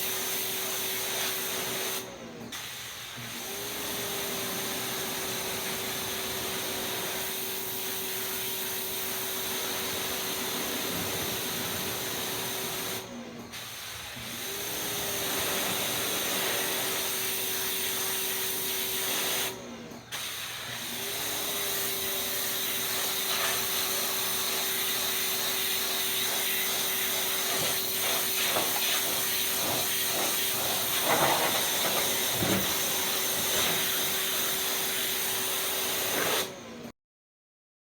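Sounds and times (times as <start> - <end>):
pressure washer water jet hiss: 9.7 - 13.0, 22.3 - 36.4.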